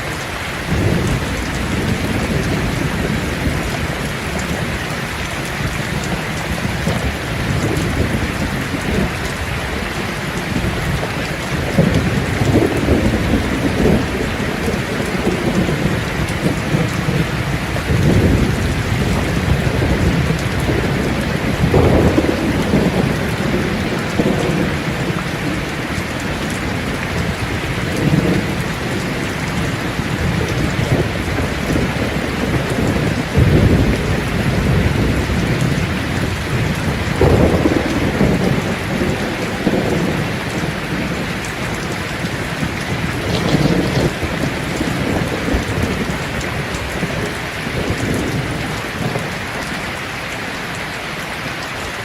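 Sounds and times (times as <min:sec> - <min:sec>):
heavy rain falling: 0:00.0 - 0:52.0
low rolling thunder: 0:00.5 - 0:49.8.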